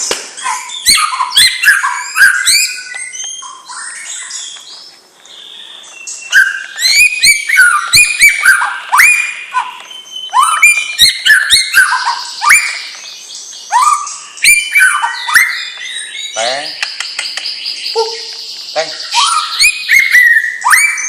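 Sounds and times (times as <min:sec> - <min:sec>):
bird singing whistles and clicks: 0:00.0 - 0:21.0.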